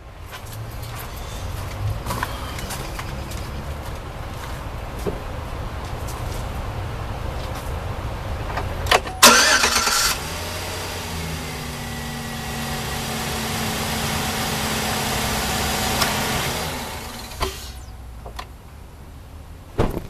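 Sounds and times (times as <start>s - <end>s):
ignition click: 8.9s - 10.1s
engine cranking and starting: 9.2s - 11.9s, 15.2s - 17.9s
engine idling: 9.2s - 18.0s.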